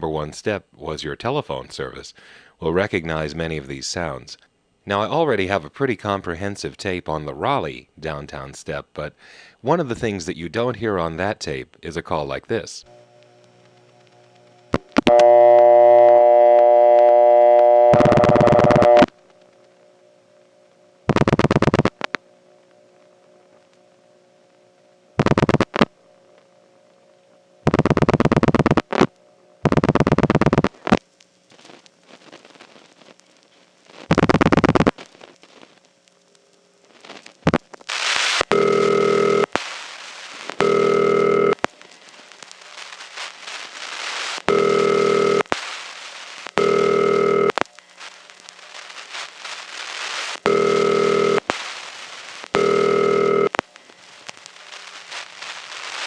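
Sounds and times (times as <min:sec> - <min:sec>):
buzzy double ringback tone: 0:15.0 - 0:19.1
hissy phone line: 0:15.0 - 0:19.2, 0:37.9 - 0:56.0.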